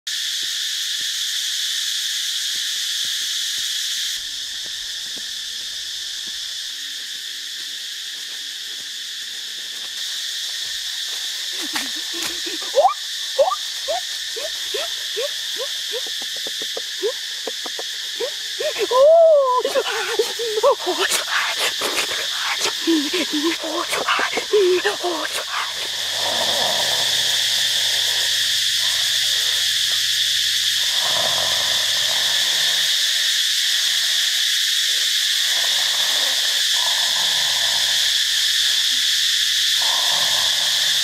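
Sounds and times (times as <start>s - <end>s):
insect chorus: 0.1s - 41.0s
wavering animal call: 11.6s - 26.2s.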